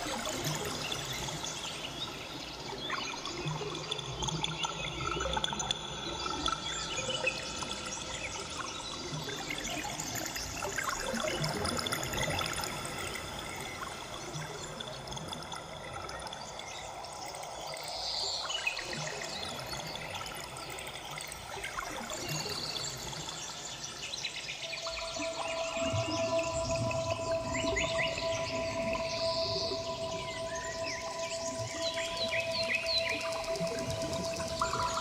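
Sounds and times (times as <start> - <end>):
ambient meditation music: 0.0 - 35.0
trickling water: 0.0 - 35.0
sustained tones: 24.6 - 35.0.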